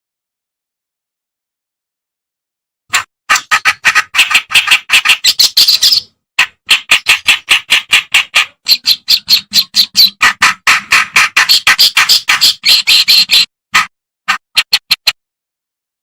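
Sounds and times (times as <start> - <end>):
warbler harsh chattering song: 3.3 - 13.5.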